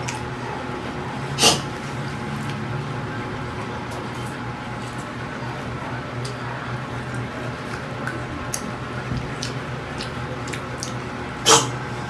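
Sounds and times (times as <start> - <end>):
steady low hum: 0.0 - 12.0
wet chewing: 7.0 - 11.6.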